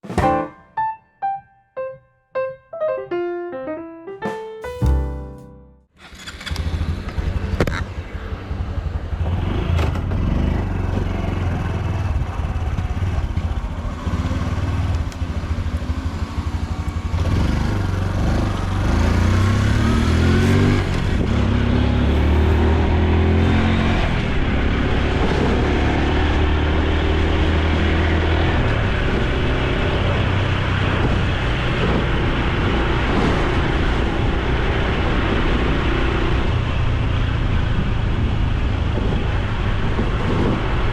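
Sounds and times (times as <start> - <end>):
motorcycle engine accelerating: 6.0 - 40.8.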